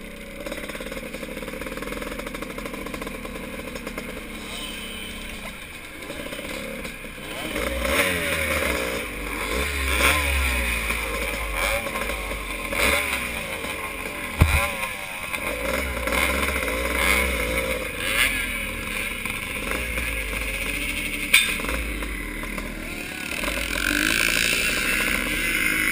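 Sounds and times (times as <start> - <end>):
motorcycle engines revving: 0.0 - 25.9
sharp knock: 14.4 - 14.8.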